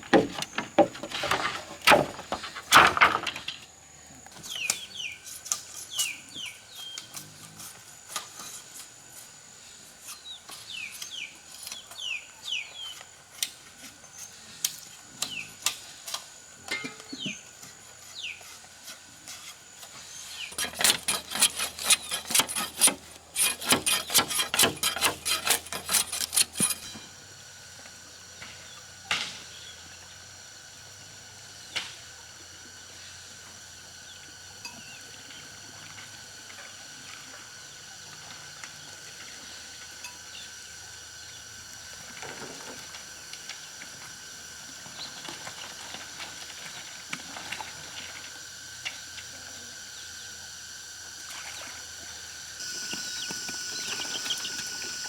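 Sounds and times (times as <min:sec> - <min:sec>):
steady high-pitched whine: 0:00.0 - 0:55.0
rapid dry clicking and rustling: 0:20.5 - 0:26.9
birds chirping: 0:52.6 - 0:55.0.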